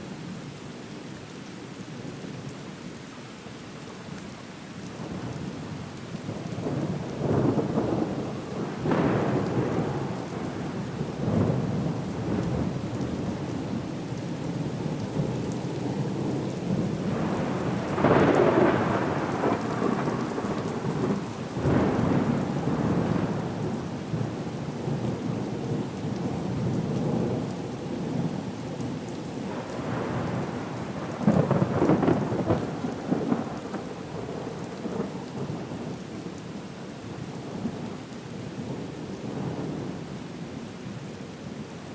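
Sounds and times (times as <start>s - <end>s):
steady rain: 0.0s - 41.9s
thunder rumbling: 15.9s - 25.0s, 29.5s - 35.6s.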